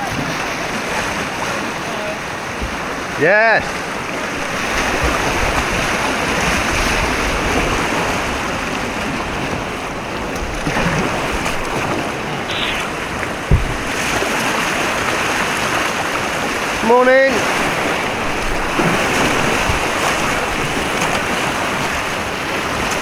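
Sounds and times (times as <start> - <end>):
white water rushing: 0.0 - 23.0
short thump: 12.4 - 14.1.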